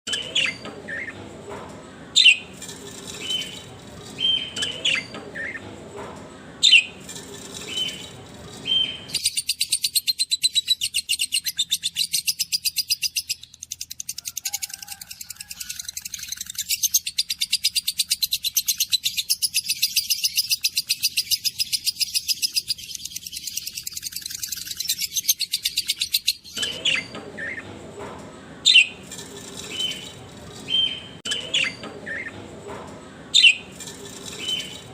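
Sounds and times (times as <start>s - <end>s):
birds chirping: 0.1s - 34.9s
high-pitched bird chattering: 7.6s - 27.6s, 29.6s - 32.3s.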